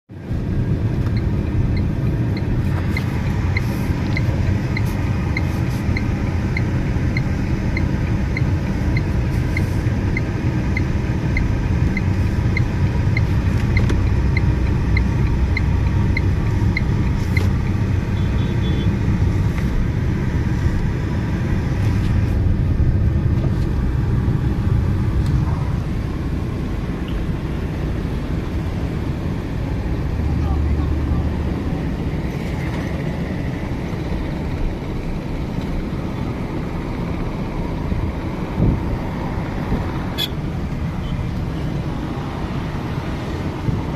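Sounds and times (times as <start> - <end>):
road vehicle rumbling: 0.1 - 43.9
light evenly spaced ticks: 1.0 - 17.8.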